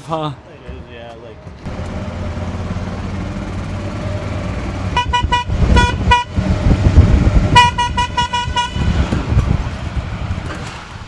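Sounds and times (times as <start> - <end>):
golf cart horn beeps: 4.9 - 6.5, 7.5 - 9.0.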